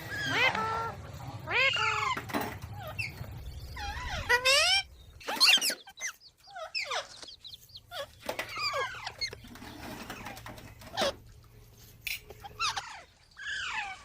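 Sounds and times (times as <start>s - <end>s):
parrot chattering calls: 0.0s - 7.2s.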